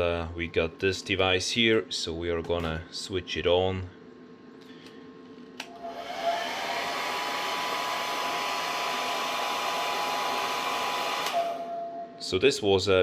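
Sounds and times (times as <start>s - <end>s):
hair dryer blowing: 5.7s - 11.8s
hair dryer switch click: 11.2s - 11.4s.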